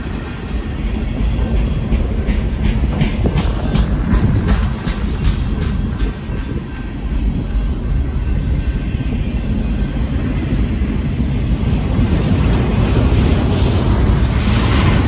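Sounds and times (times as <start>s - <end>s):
freight train wheels rumbling on rails: 0.0s - 15.0s.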